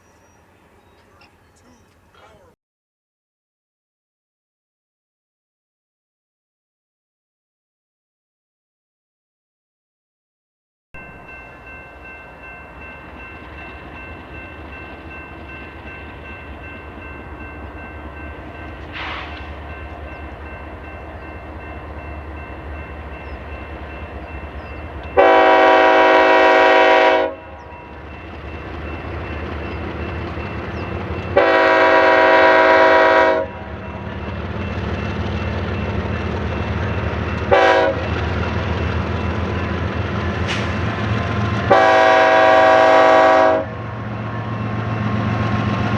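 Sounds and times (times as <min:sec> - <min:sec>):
locomotive rumble: 0:11.0 - 0:45.9
train air horn blasts: 0:18.8 - 0:19.7, 0:25.2 - 0:27.6, 0:31.3 - 0:33.7, 0:37.5 - 0:38.2, 0:40.4 - 0:43.8.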